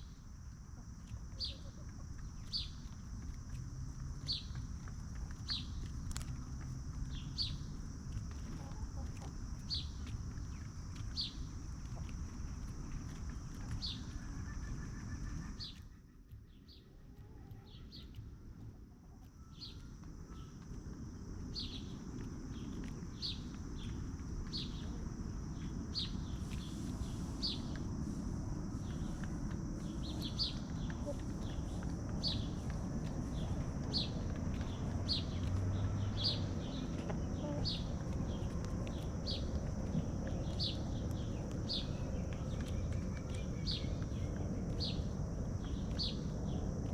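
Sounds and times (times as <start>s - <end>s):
low outdoor rumble: 0.0s - 46.9s
bird chirping: 26.0s - 27.8s, 28.7s - 46.6s.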